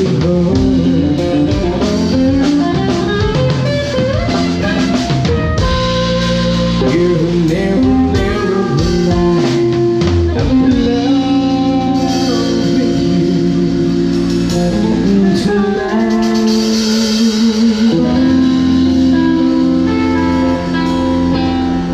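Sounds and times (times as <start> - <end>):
pop band playing: 0.0 - 21.9
person singing long notes: 6.7 - 20.8.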